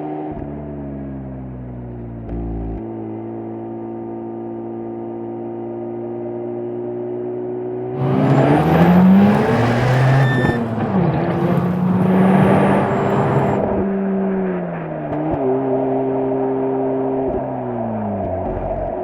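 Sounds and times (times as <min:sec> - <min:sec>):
rotary engine revving: 0:08.0 - 0:13.9.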